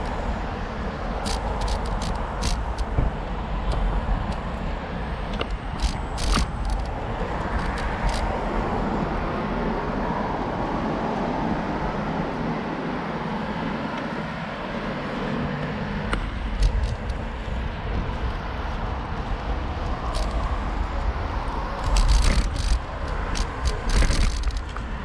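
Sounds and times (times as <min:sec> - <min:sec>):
road traffic: 0:00.0 - 0:25.0
wind rumble on microphone: 0:00.0 - 0:25.0
sharp clicks: 0:01.2 - 0:03.0, 0:05.3 - 0:08.2, 0:21.8 - 0:24.8.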